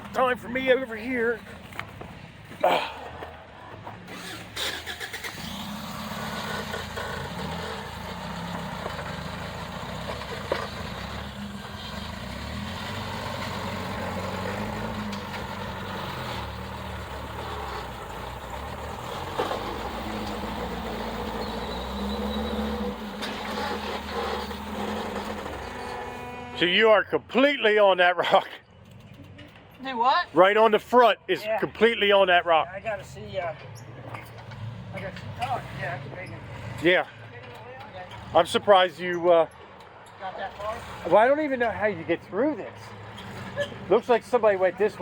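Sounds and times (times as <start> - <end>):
vehicle engine revving: 4.0 - 26.6.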